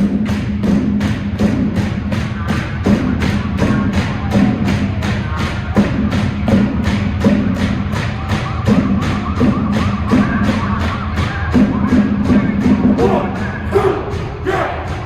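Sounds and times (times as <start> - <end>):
marching drumline: 0.0 - 15.0
pitched accompaniment: 0.0 - 15.0.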